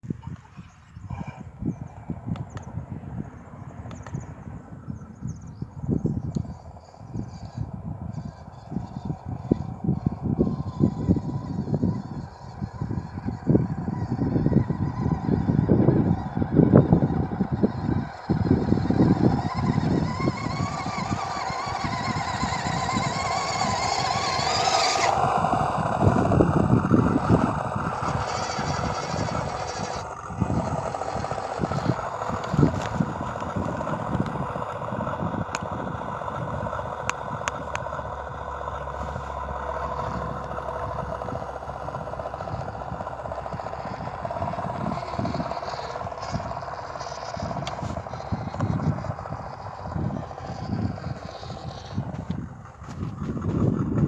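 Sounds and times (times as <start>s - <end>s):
toy truck drivetrain whining: 0.0s - 54.0s
wheels thumping and crunching soil: 17.3s - 54.0s.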